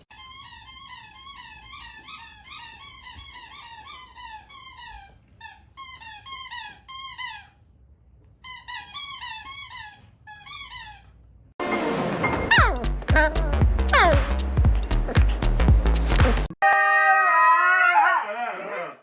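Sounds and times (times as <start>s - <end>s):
dog whining: 12.2s - 14.2s.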